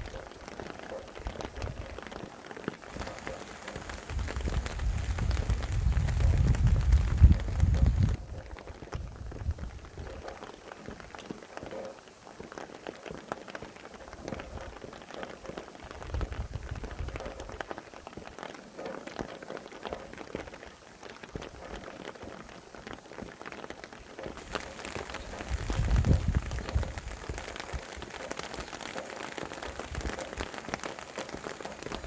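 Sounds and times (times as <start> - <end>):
rain pattering on a surface: 0.0 - 32.0
wind gusts: 2.8 - 10.4, 15.8 - 17.6, 24.2 - 32.0.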